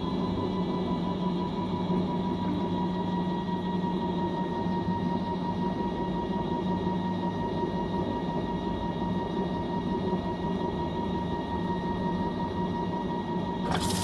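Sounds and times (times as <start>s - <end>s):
washing machine humming: 13.6s - 14.0s.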